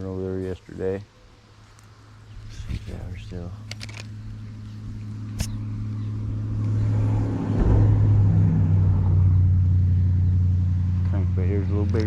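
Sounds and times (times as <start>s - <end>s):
vehicle engine droning: 1.6s - 12.0s
sharp click: 5.4s - 5.6s.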